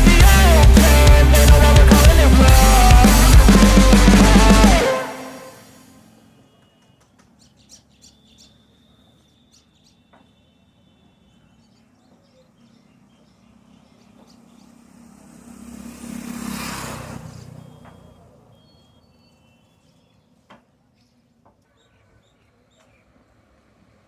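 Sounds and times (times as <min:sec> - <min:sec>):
bird chirps: 0:05.6 - 0:15.1, 0:17.2 - 0:23.3
vehicle passing: 0:12.8 - 0:19.4.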